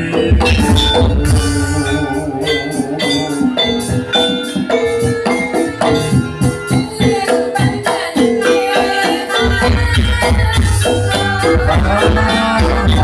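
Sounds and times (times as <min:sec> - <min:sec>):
heavy bass: 0:00.0 - 0:04.2, 0:09.9 - 0:13.0
gamelan gongs and metallophones: 0:00.0 - 0:13.0.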